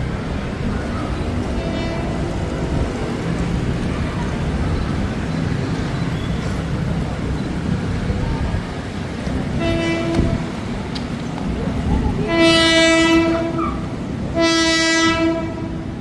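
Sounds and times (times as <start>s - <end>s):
road traffic rumble: 0.0s - 16.0s
train horn: 1.4s - 3.0s, 9.5s - 10.7s, 12.2s - 16.0s.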